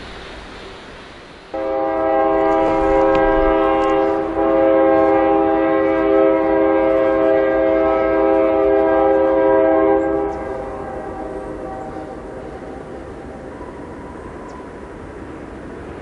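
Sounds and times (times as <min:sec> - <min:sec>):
locomotive air horn blast: 0:01.5 - 0:13.4.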